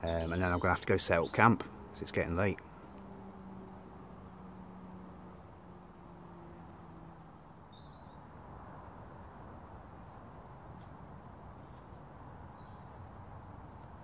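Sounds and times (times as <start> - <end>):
low outdoor background hiss: 0.0 - 14.0
small birds chirping: 0.0 - 14.0.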